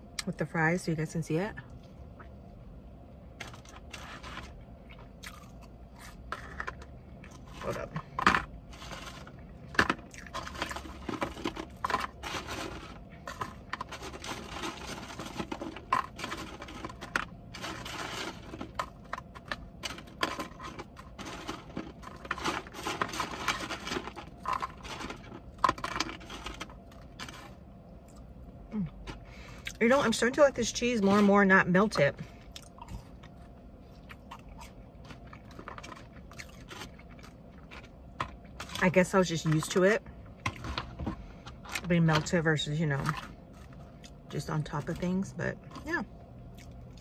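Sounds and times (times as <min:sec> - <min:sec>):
food containers handled: 0:03.4 - 0:27.6, 0:34.0 - 0:43.9.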